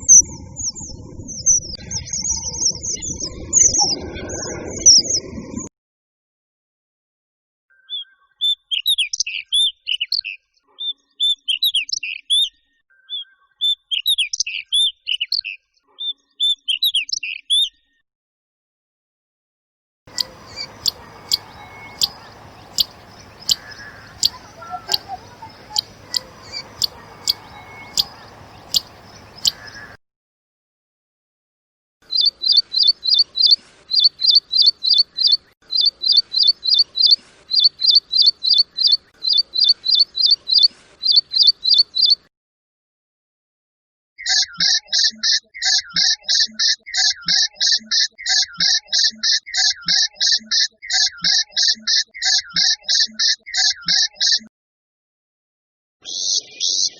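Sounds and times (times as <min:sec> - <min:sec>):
background hiss: 0:20.1 - 0:30.0
bird repeating quick high notes: 0:20.1 - 0:30.0
bird whistled song phrases: 0:20.1 - 0:30.0
sharp bird call notes: 0:20.1 - 0:30.0.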